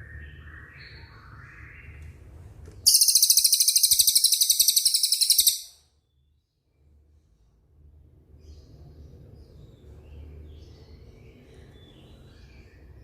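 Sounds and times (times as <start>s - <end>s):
fast high-pitched bird trill: 2.9s - 5.8s
songbird whistled notes: 2.9s - 5.8s.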